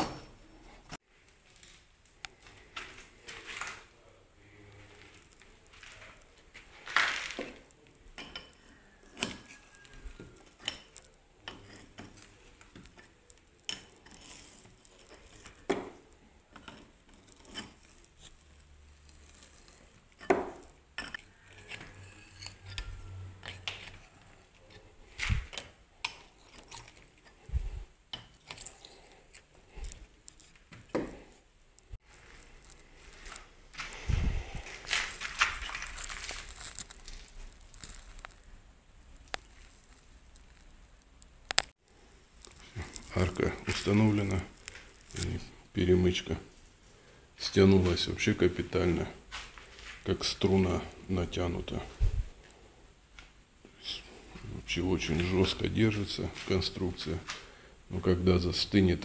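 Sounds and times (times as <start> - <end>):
hand tools clicking on metal: 8.2 - 15.6, 21.0 - 27.4.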